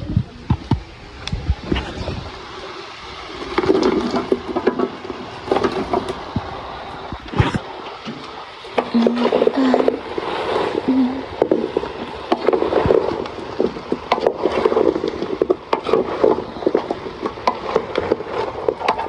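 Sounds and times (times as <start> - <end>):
irregular knocks and scrapes: 3.3 - 10.8, 11.4 - 19.0.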